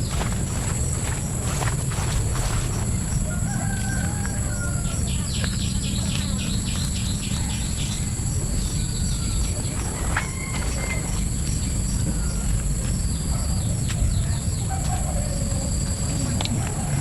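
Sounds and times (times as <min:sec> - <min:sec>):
steady low rumble: 0:00.0 - 0:17.0
rooster crowing: 0:02.9 - 0:05.4, 0:08.6 - 0:12.5.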